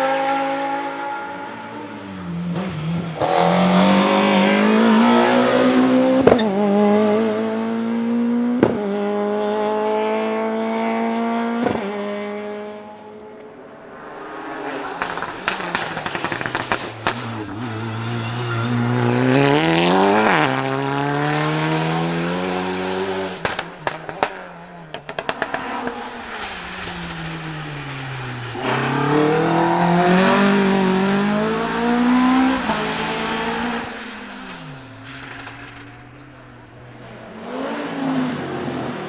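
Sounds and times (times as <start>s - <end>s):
race car engine accelerating: 0.0s - 39.0s
exhaust pops and crackles: 14.4s - 37.3s.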